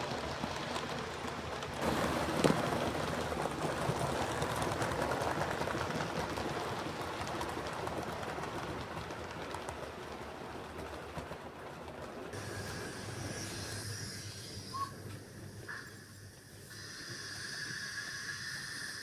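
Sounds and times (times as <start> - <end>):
model train running: 0.0 - 19.0
high hiss: 12.4 - 19.0.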